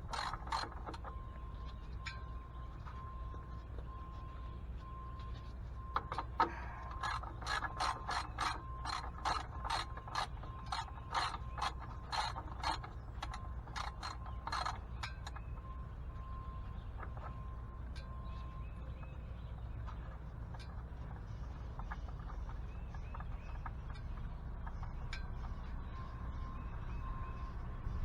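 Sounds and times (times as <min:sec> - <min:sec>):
ratchet clicking: 0:00.0 - 0:01.0, 0:06.9 - 0:15.3.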